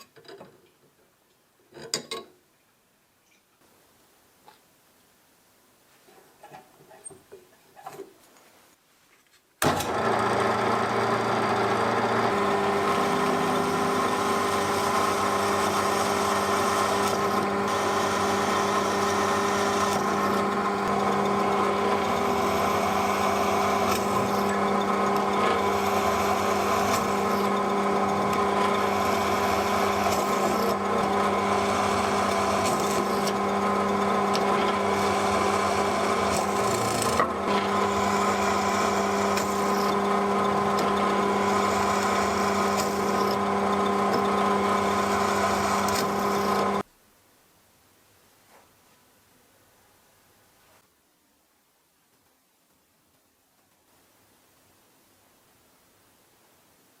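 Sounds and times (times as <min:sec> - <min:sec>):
drill press motor humming: 0:09.6 - 0:46.8.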